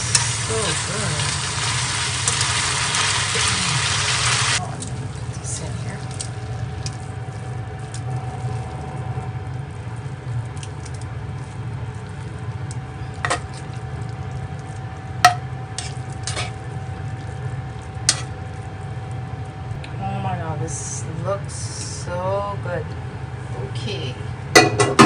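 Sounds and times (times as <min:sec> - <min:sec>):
steady low hum: 0:00.0 - 0:25.0
soft stirring: 0:04.6 - 0:19.9.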